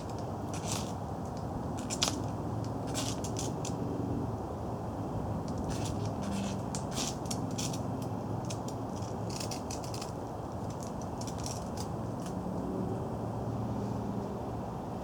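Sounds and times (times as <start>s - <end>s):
fire striker scratching: 0.0s - 3.8s, 5.4s - 12.4s.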